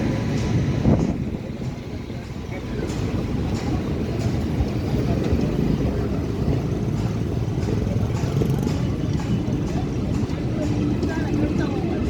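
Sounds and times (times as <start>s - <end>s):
heavy vehicles passing: 0.0s - 12.0s.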